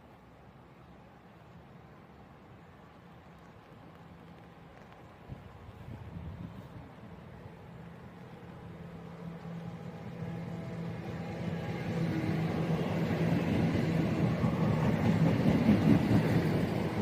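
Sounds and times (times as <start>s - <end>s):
diesel train engine hum: 0.0s - 17.0s
wheels on rails: 8.6s - 17.0s.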